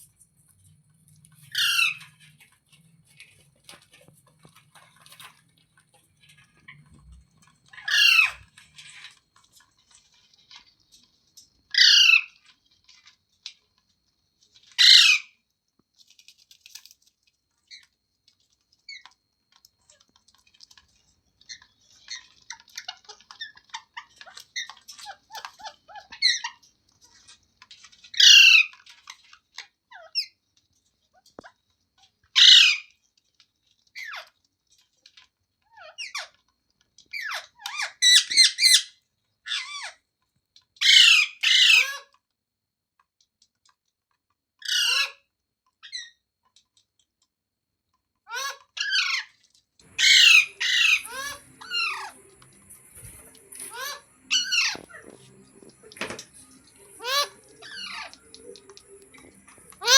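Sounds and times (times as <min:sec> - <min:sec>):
parrot chattering chirps: 0:01.5 - 0:02.2, 0:07.8 - 0:08.4, 0:11.8 - 0:12.4, 0:14.8 - 0:15.3, 0:28.2 - 0:28.7, 0:32.4 - 0:32.9, 0:37.1 - 0:38.9, 0:39.5 - 0:40.0, 0:40.8 - 0:42.0, 0:44.7 - 0:45.2, 0:48.3 - 0:59.9
parrot squawks: 0:01.5 - 0:02.3, 0:07.7 - 0:09.1, 0:11.7 - 0:12.4, 0:14.8 - 0:15.4, 0:28.1 - 0:28.8, 0:32.4 - 0:32.9, 0:37.1 - 0:40.0, 0:40.8 - 0:42.2, 0:44.6 - 0:45.2, 0:48.3 - 0:52.3, 0:53.0 - 0:59.9.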